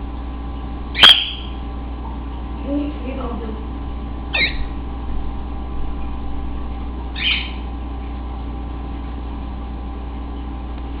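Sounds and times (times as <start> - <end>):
low background hum: 0.0 - 11.0
cockatiel chirp: 1.0 - 1.6, 4.3 - 4.7, 7.2 - 7.6.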